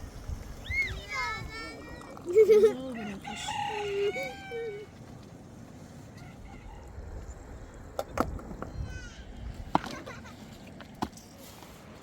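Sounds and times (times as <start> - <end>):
rooster crowing: 3.0 - 4.9, 6.2 - 6.9.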